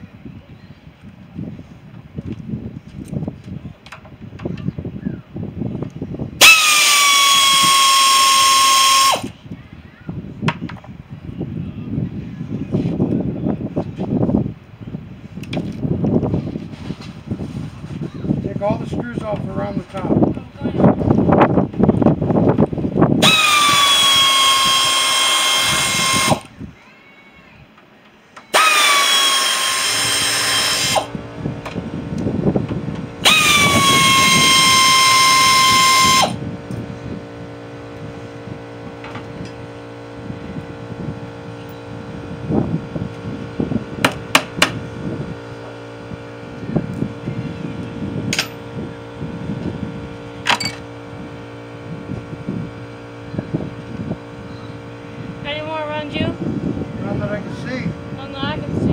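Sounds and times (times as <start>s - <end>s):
power drill whining: 6.4s - 9.4s, 23.2s - 26.6s, 28.4s - 31.2s, 33.2s - 36.8s
steady low hum: 27.5s - 58.9s.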